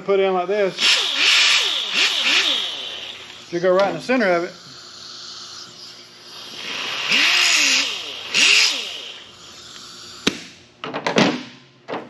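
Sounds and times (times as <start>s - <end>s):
grinder on sheet metal: 0.8s - 3.7s, 4.3s - 10.2s.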